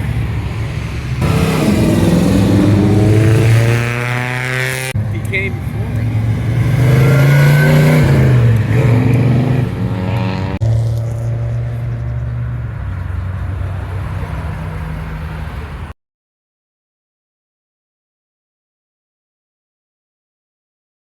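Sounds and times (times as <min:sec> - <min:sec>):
car engine running steadily: 0:00.0 - 0:04.1
car engine revving: 0:00.9 - 0:15.6.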